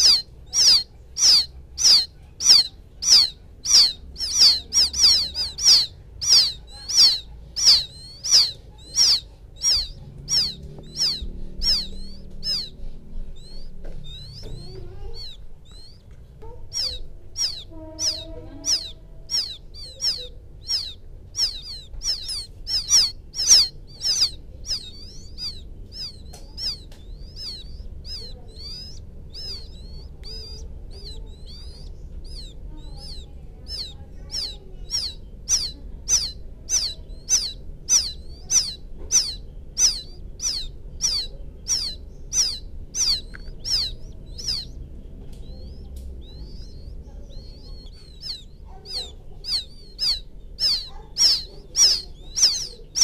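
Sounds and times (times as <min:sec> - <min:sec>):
quail chicks peeping: 0:00.0 - 0:53.0.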